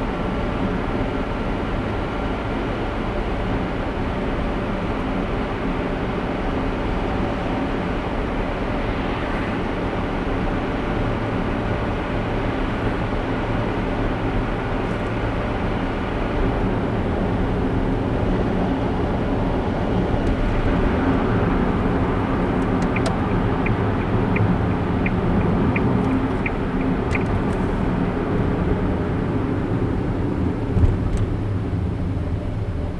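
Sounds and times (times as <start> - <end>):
car engine and road rumble: 0.0 - 32.9
ticking: 21.9 - 27.9.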